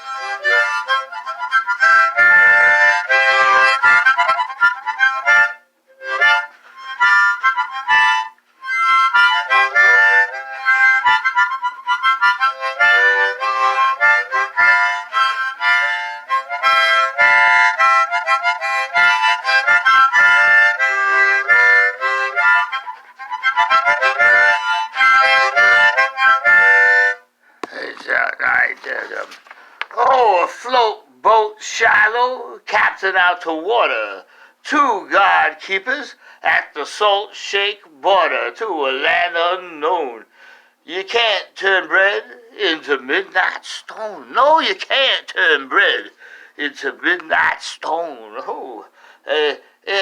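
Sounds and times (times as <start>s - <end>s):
harmonica playing: 0.0s - 27.4s, 39.0s - 46.8s.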